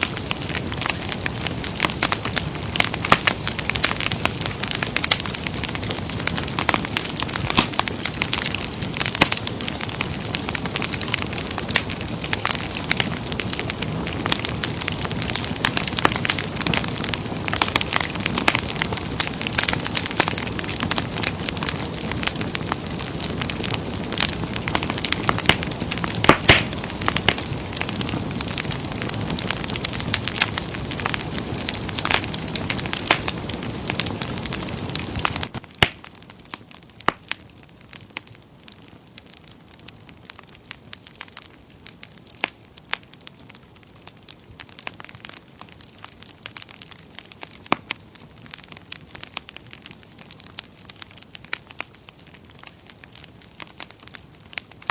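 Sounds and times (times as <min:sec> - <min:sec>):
rush of flame: 0:00.0 - 0:37.3
wood fire crackling and popping: 0:00.0 - 0:54.9.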